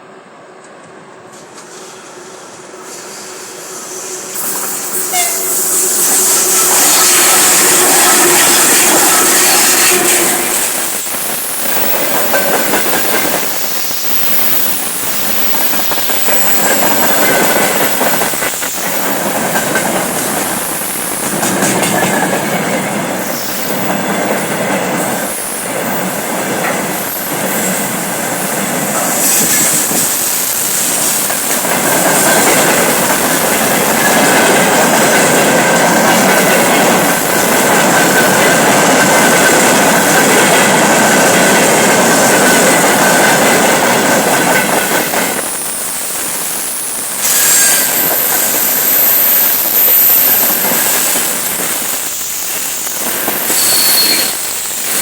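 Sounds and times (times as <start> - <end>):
thin wheel squeal: 47.2 - 51.2, 53.4 - 54.6.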